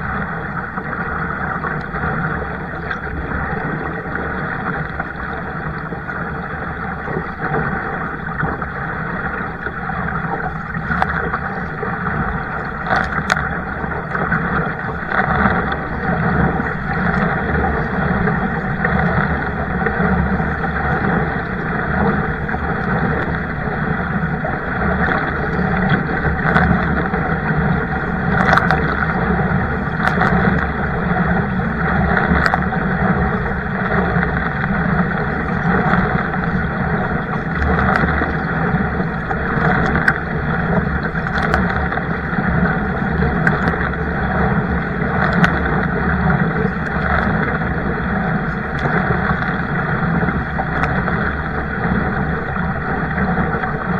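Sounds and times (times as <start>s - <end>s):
rushing water: 0.0s - 53.9s
wind noise: 0.0s - 53.9s.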